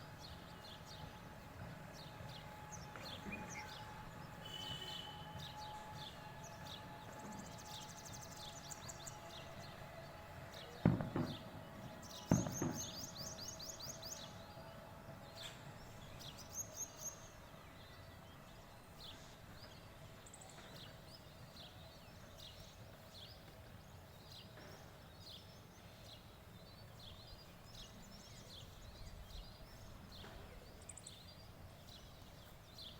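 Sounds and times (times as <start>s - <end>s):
loud thumps: 10.8s - 11.5s, 12.3s - 13.1s.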